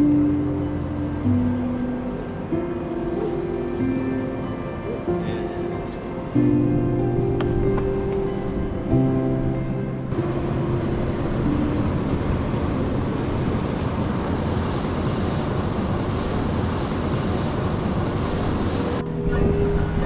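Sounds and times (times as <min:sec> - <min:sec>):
music: 0:00.0 - 0:15.1, 0:18.7 - 0:20.0
steam venting hiss: 0:10.1 - 0:19.0.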